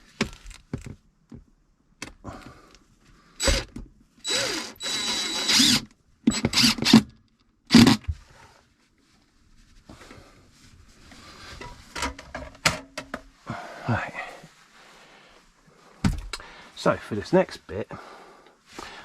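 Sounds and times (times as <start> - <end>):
power drill driving screws: 3.4 - 7.1, 7.7 - 8.1.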